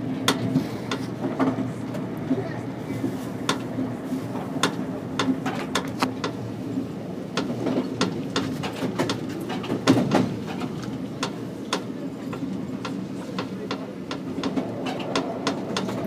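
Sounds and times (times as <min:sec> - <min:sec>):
train rumbling on track: 0:00.0 - 0:16.0
wheels clicking over rail joints: 0:03.4 - 0:06.4, 0:07.3 - 0:16.0.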